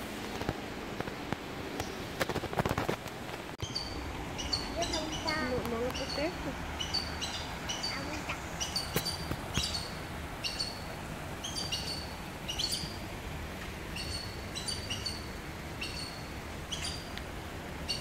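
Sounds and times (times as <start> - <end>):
birds chirping: 3.6 - 17.2, 17.8 - 18.0.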